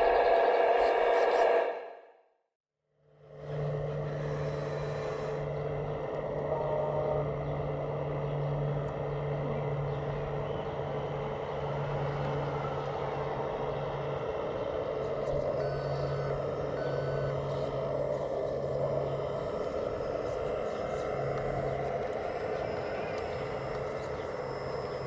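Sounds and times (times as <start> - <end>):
model machine motor hum: 3.3 - 25.0
reversing beep: 15.2 - 25.0.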